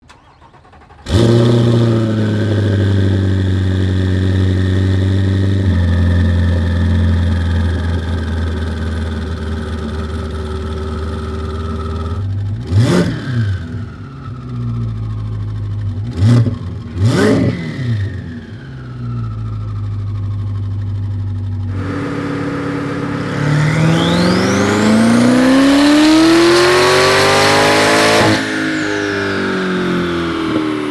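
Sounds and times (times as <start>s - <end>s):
car engine idling: 0.1s - 12.7s, 13.6s - 30.9s
engine throttle blip: 21.7s - 29.3s.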